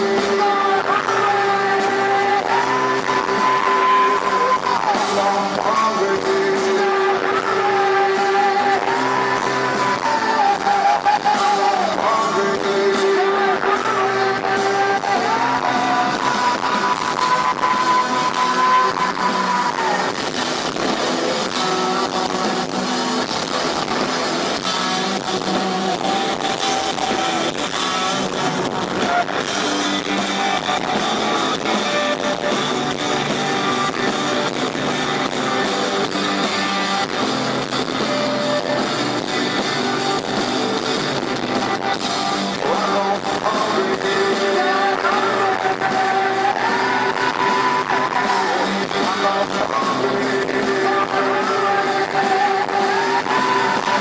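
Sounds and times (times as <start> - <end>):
rock band playing live: 0.0 - 54.0
men singing: 42.6 - 54.0.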